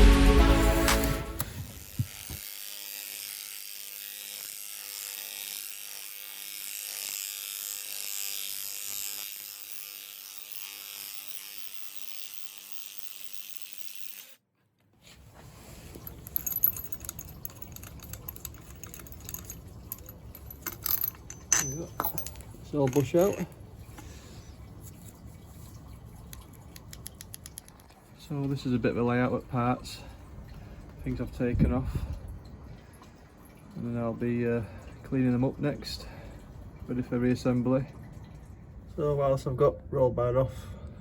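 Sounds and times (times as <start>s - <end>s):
hand tools clinking on metal: 15.9s - 23.6s.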